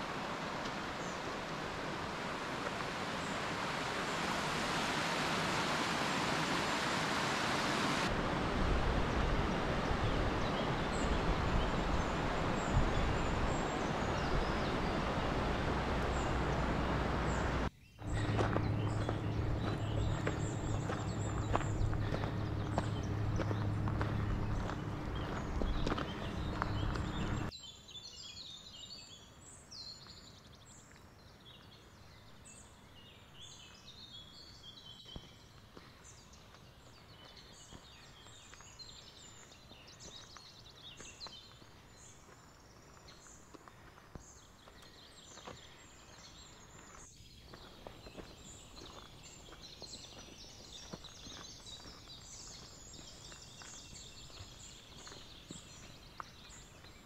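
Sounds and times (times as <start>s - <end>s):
faint outdoor hiss: 0.0s - 28.6s
small birds chirping and trilling: 9.0s - 57.0s.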